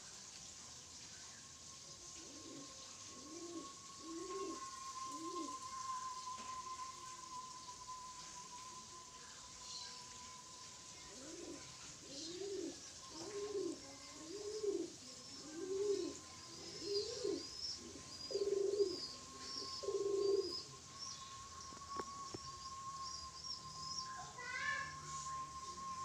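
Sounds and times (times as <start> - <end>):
pigeon cooing: 2.2 - 5.8, 11.1 - 20.8
small bird chirping: 8.4 - 26.0.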